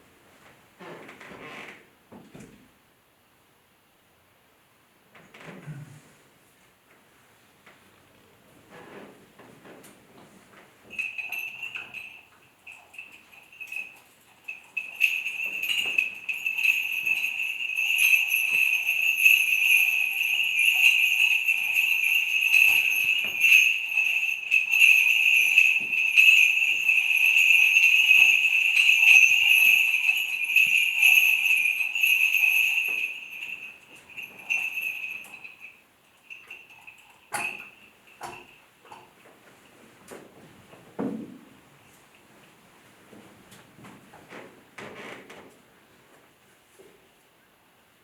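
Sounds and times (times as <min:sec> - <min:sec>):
chains clinking: 0:10.9 - 0:39.0
small bells jingling: 0:10.9 - 0:39.2.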